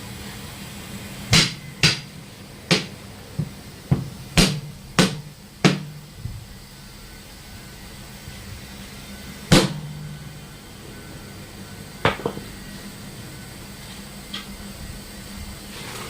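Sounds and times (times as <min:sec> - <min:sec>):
hammer striking metal wheel: 0:01.3 - 0:06.1, 0:09.5 - 0:10.3, 0:12.0 - 0:12.5.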